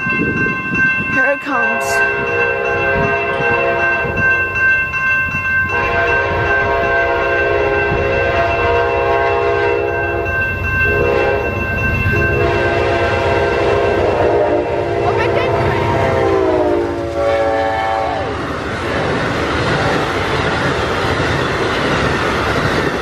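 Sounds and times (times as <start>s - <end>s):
train engine rumble: 0.0s - 23.0s
train horn blasts: 1.7s - 4.2s, 5.7s - 18.4s.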